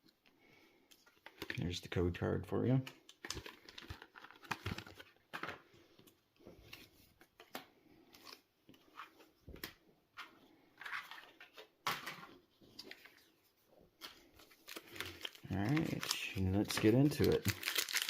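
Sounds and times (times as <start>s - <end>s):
cards and foil wrappers rustling: 3.1s - 5.7s, 14.0s - 18.0s.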